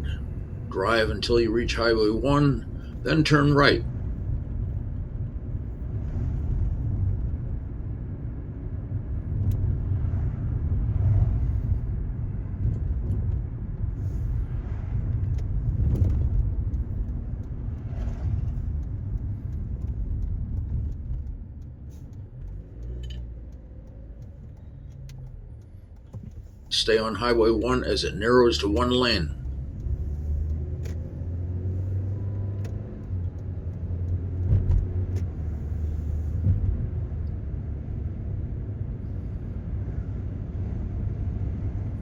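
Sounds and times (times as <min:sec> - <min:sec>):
car road and engine rumble: 0:00.0 - 0:42.0
faint clicks and rattles: 0:15.0 - 0:26.8.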